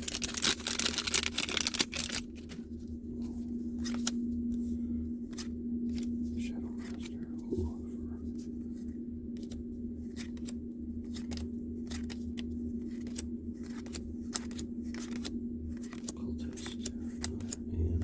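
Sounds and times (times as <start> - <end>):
cards clicking and snapping: 0.0 - 2.6, 3.8 - 4.2, 9.3 - 17.7
steady low hum: 0.0 - 18.0.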